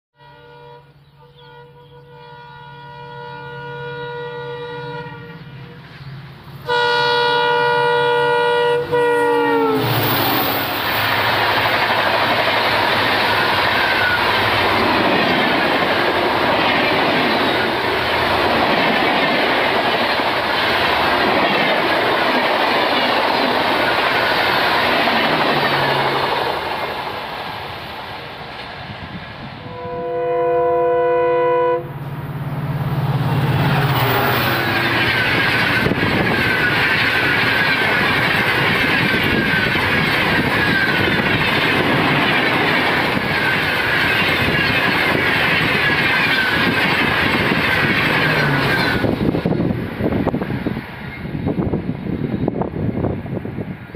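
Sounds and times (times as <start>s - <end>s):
locomotive horn blast: 0.2s - 5.8s, 6.6s - 10.7s, 29.6s - 32.2s
train wheels rattling on rails: 9.8s - 29.6s, 32.2s - 53.9s.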